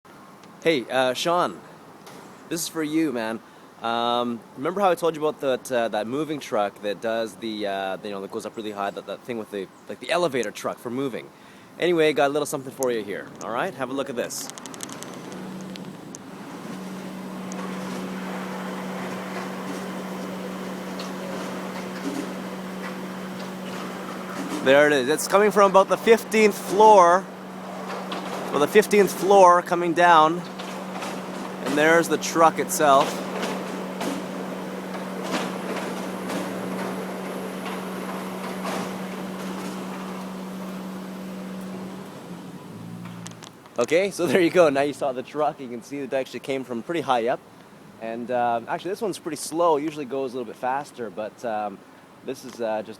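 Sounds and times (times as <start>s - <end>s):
ladder lift mechanical hum: 12.8s - 44.6s
clicks and knocks: 14.4s - 16.9s.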